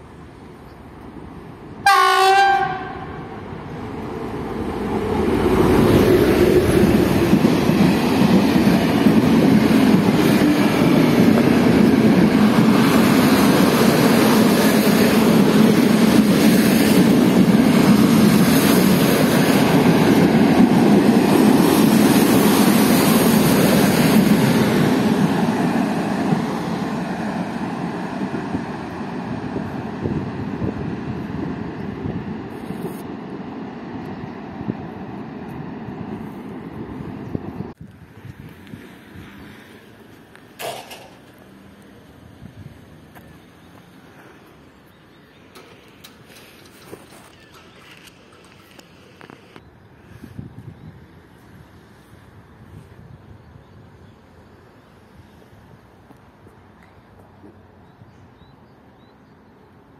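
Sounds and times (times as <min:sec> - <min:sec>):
locomotive horn blast: 0:01.8 - 0:03.3.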